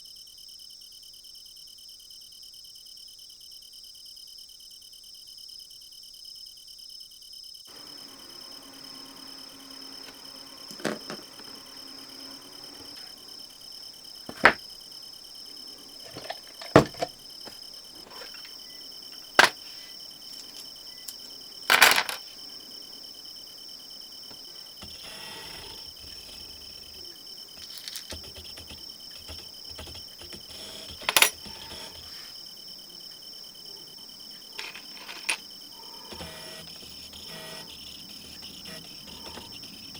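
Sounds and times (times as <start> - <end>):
crickets chirping: 0.0 - 39.9
clicks of small tools and plastic: 16.0 - 17.1, 19.4 - 19.6, 20.4 - 22.2, 27.6 - 32.1.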